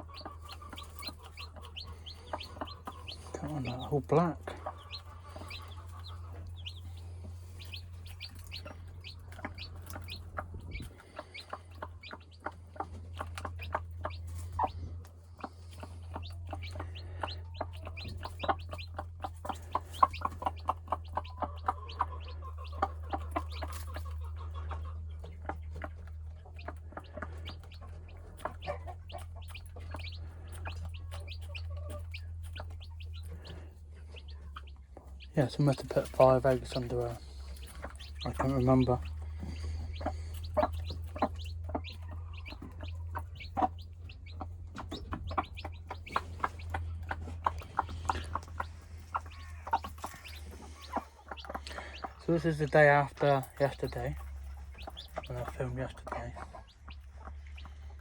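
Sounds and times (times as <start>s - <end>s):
steady low hum: 0.0s - 23.9s
chicks peeping: 0.0s - 58.0s
hen clucking: 0.0s - 58.0s.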